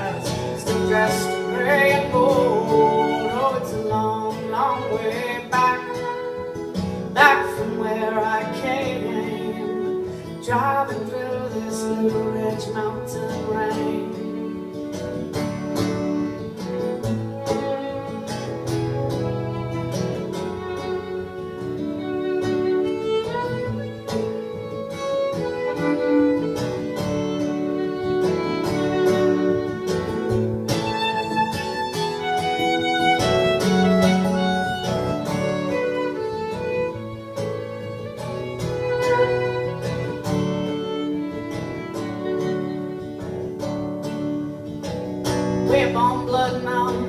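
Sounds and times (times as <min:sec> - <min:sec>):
acoustic guitar: 0:00.0 - 0:47.0
violin melody: 0:00.0 - 0:47.0.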